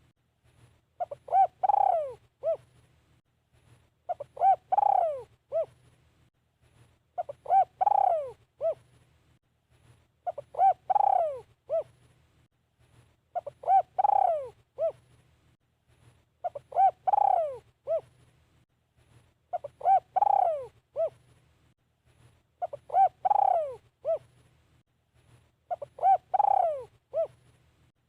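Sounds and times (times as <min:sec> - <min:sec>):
dove cooing: 0:01.0 - 0:02.7, 0:04.1 - 0:05.8, 0:07.2 - 0:08.9, 0:10.2 - 0:12.0, 0:13.4 - 0:15.0, 0:16.4 - 0:18.1, 0:19.5 - 0:21.2, 0:22.6 - 0:24.3, 0:25.7 - 0:27.4.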